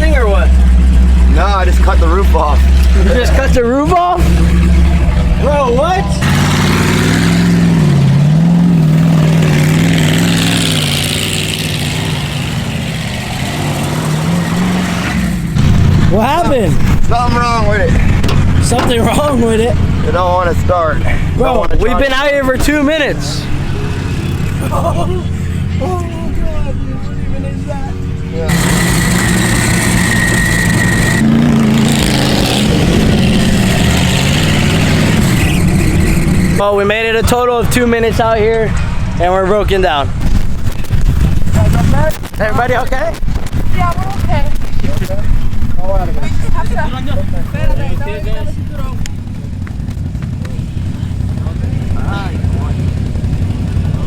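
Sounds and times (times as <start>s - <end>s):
van engine stalling: 0.0s - 23.6s
vehicle engine running: 0.0s - 54.0s.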